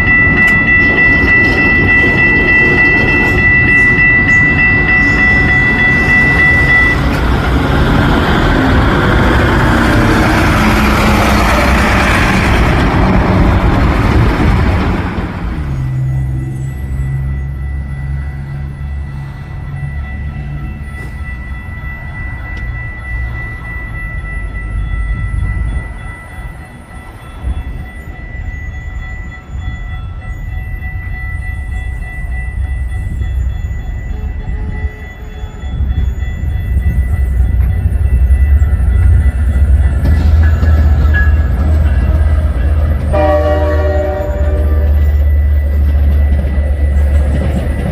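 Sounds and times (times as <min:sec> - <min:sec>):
thin high tone: 0:00.0 - 0:07.2
high steady tone: 0:00.0 - 0:47.9
train rumbling and rattling past: 0:00.0 - 0:47.9.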